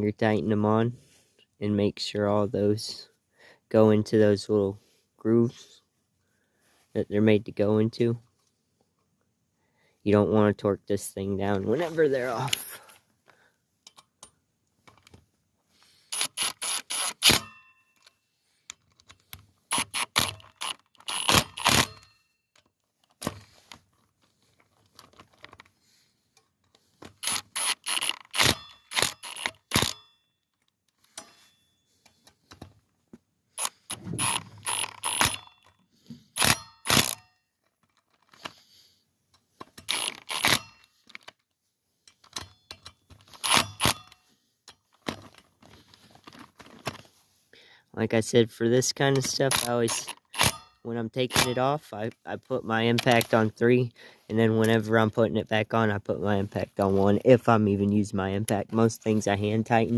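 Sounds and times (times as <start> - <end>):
socket ratchet clicking: 16.1 - 17.6, 19.1 - 22.2, 27.2 - 30.1, 33.6 - 35.8, 36.4 - 37.3, 39.7 - 40.9, 42.2 - 44.2, 49.5 - 51.6.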